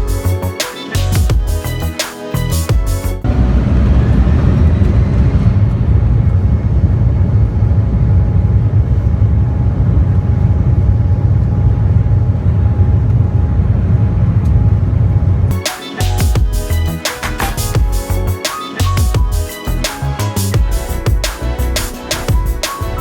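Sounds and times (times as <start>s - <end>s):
low engine rumble: 3.2s - 15.5s.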